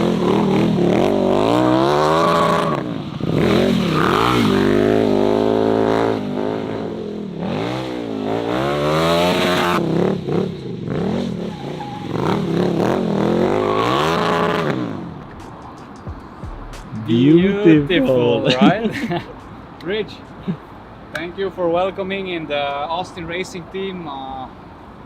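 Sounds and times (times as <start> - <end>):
motorcycle engine revving: 0.0 - 15.2.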